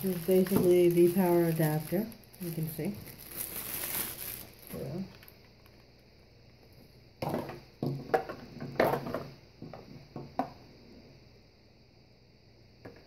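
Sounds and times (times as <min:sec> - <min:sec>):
plastic parts and packaging handled: 0:00.0 - 0:05.9.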